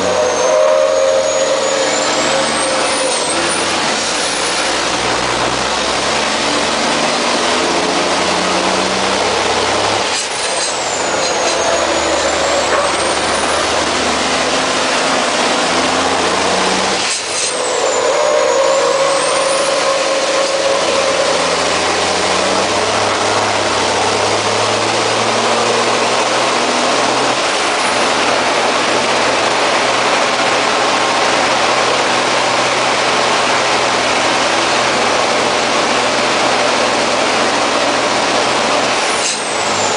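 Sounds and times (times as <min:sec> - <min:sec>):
high turbo whistle: 0:00.0 - 0:03.8, 0:10.8 - 0:13.7, 0:17.3 - 0:23.4
diesel truck engine running hard: 0:00.0 - 0:39.9.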